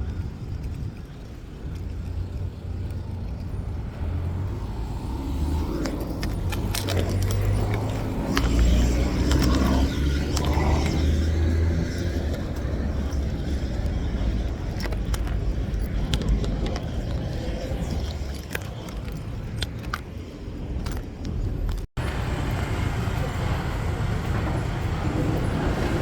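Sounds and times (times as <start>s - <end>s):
car engine rumble: 0.0s - 26.0s
steady traffic noise: 0.0s - 26.0s
small clicks and rattles: 5.6s - 21.9s.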